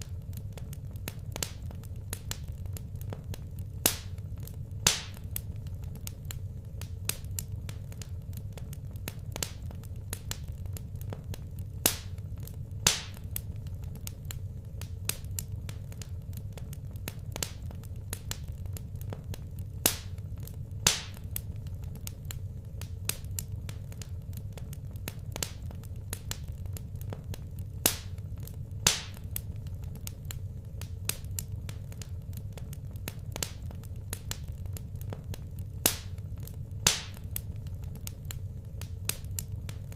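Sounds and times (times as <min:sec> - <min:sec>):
loud fire pops: 0:00.0 - 0:39.9
steady low rumble: 0:00.0 - 0:39.9
wood fire crackling: 0:00.0 - 0:39.9.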